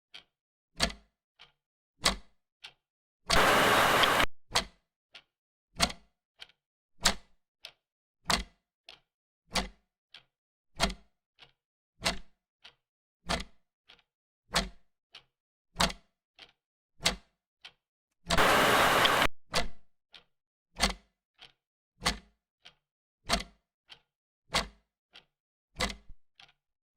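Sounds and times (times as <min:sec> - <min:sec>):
hiss: 0:03.4 - 0:04.2, 0:18.4 - 0:19.3.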